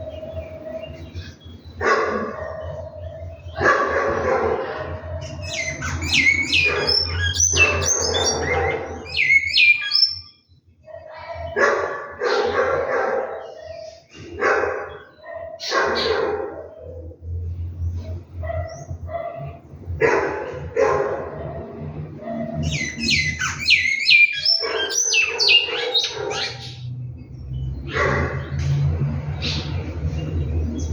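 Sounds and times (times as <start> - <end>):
finch singing whistled notes: 5.2 - 10.4, 22.6 - 26.9.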